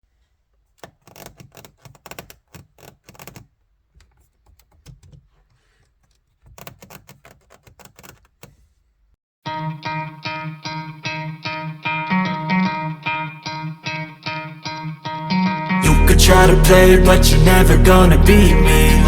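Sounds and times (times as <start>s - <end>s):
plastic trim clicking and rattling: 0.8s - 8.6s.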